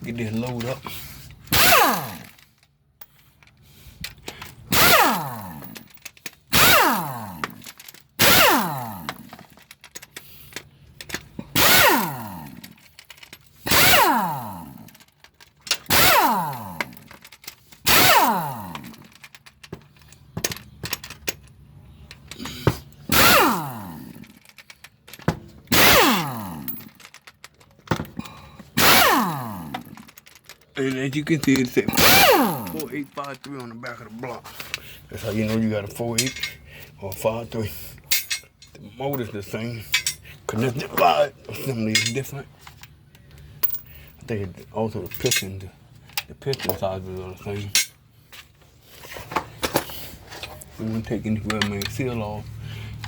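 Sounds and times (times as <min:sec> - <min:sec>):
power tool bursts: 0:01.5 - 0:02.4, 0:04.7 - 0:05.8, 0:06.5 - 0:09.3, 0:11.6 - 0:12.7, 0:13.6 - 0:15.0, 0:15.9 - 0:17.1, 0:17.8 - 0:19.0, 0:22.4 - 0:24.3, 0:25.7 - 0:27.0, 0:28.7 - 0:30.1, 0:31.9 - 0:33.3.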